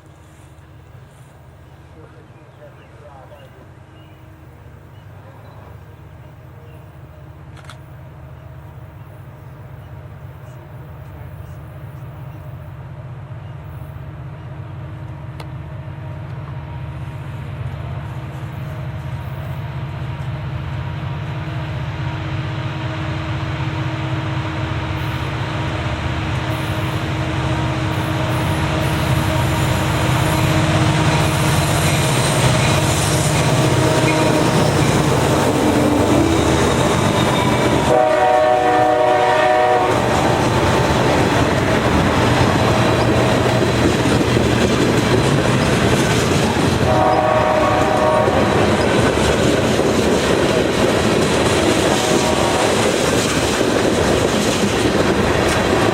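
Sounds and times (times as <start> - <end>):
train wheels clattering on rails: 26.3 - 38.2, 39.8 - 55.9
locomotive horn: 32.3 - 41.7, 46.5 - 49.0.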